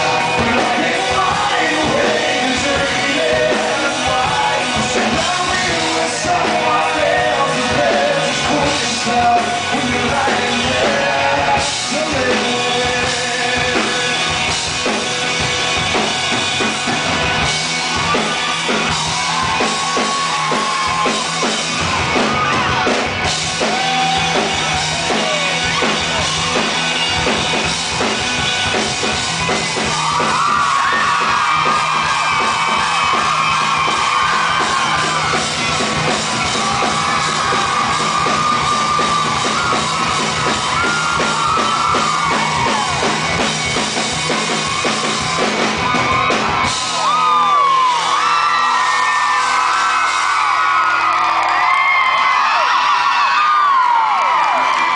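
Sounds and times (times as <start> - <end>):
person singing: 0.0 - 14.4
live rock band playing: 0.0 - 54.9.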